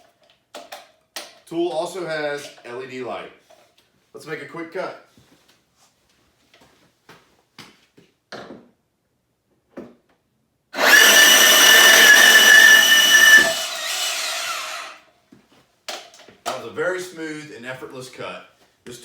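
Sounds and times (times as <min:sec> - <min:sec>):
band saw cutting with high whine: 0:10.8 - 0:15.0.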